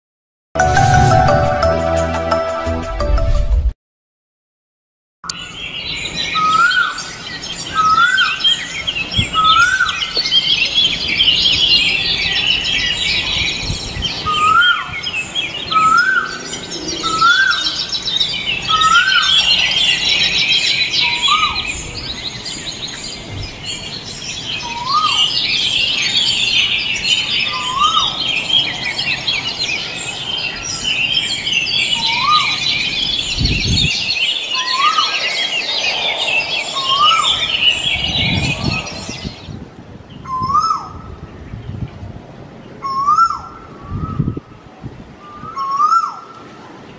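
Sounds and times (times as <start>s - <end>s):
many birds chirping: 5.3s - 42.0s
bird rising whistle: 34.1s - 39.5s.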